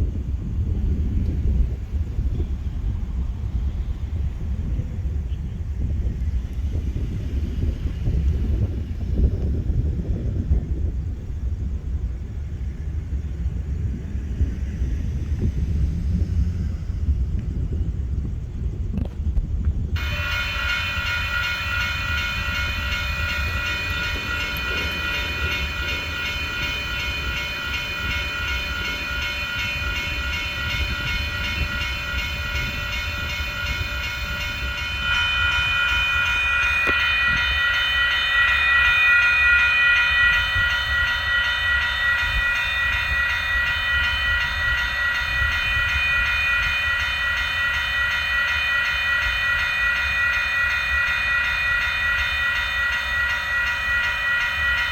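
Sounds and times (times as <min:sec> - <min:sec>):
train rumbling past: 0:00.0 - 0:54.9
high-pitched ringing tone: 0:20.0 - 0:54.9.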